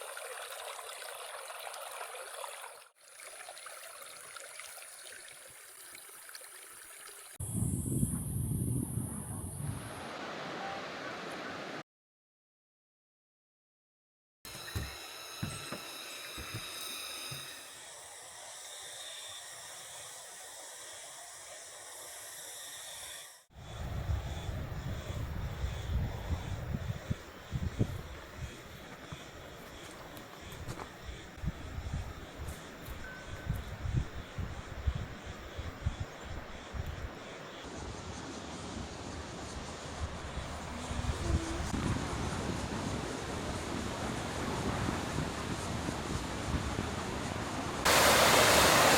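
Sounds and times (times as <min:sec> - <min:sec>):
stream water rushing: 0:00.0 - 0:07.4, 0:09.8 - 0:11.8, 0:47.8 - 0:48.9
cicadas buzzing: 0:03.6 - 0:10.0, 0:14.5 - 0:48.9
high-pitched hiss: 0:14.5 - 0:48.9.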